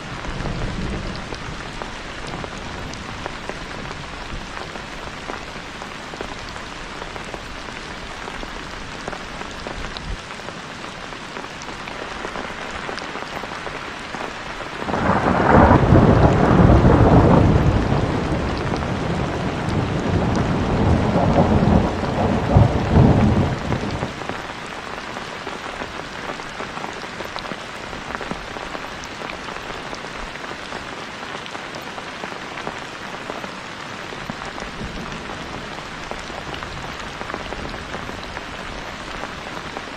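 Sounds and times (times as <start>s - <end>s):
heavy rain: 0.0s - 39.9s
deep rumble of thunder: 14.9s - 24.2s.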